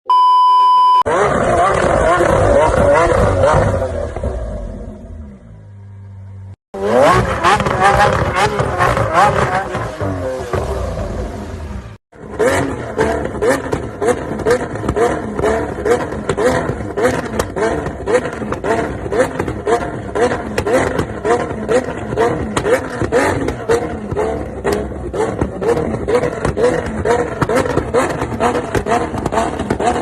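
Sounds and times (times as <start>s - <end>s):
pulsing car exhaust: 1.1s - 30.0s.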